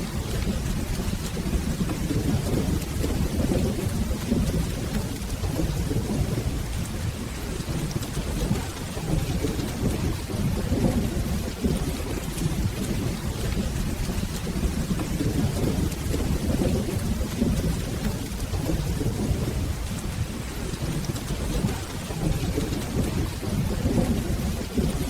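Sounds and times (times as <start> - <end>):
rolling thunder: 0.0 - 25.0
steady rain: 0.0 - 25.0.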